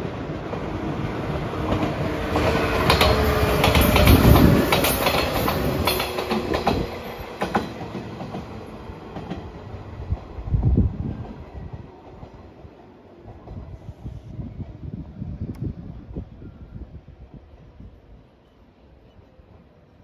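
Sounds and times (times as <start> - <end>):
train wheels clicking over rail joints: 1.6 - 10.2.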